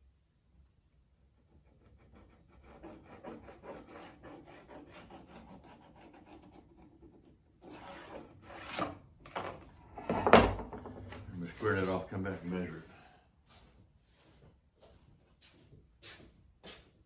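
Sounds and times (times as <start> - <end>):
rasping on wooden board: 1.5 - 9.0
loud scrape: 7.6 - 9.0.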